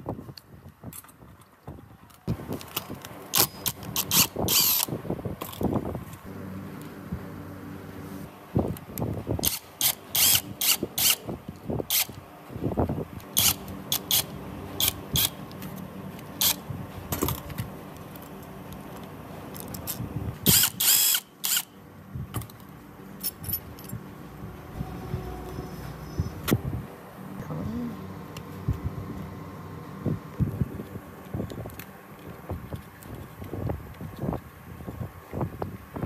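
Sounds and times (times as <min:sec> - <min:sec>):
screwdriver clicking on metal parts: 0:02.6 - 0:05.7, 0:09.4 - 0:11.2, 0:11.9 - 0:12.2, 0:13.2 - 0:16.6, 0:19.0 - 0:21.7.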